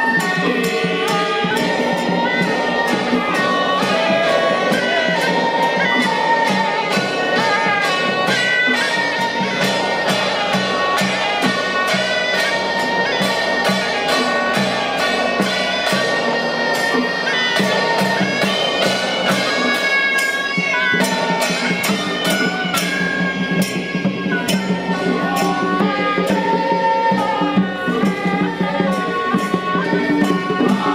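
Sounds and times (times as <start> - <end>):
drum and cymbal beat: 0.0 - 30.9
reed horns playing melody: 0.1 - 16.0.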